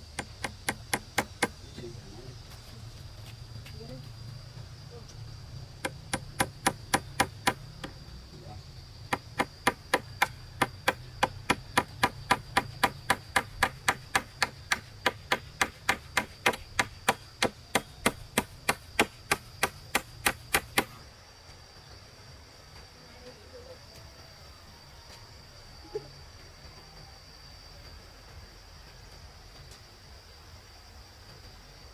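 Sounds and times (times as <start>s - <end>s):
hand tool striking wood: 0.1s - 1.6s, 5.8s - 8.0s, 9.1s - 21.0s.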